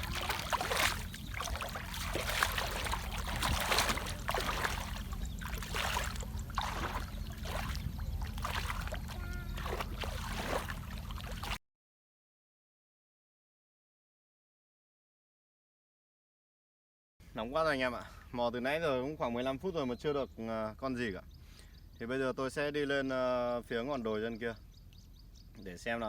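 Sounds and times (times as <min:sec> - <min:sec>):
river water sloshing and splashing: 0:00.0 - 0:11.6
steady low rumble: 0:00.0 - 0:11.6.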